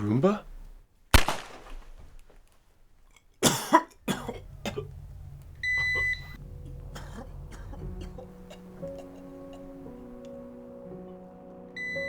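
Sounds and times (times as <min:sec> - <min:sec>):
person coughing: 0:03.4 - 0:10.2
low steady hum: 0:03.5 - 0:11.1
music: 0:04.2 - 0:12.0
electronic beep: 0:05.6 - 0:06.4, 0:11.8 - 0:12.0.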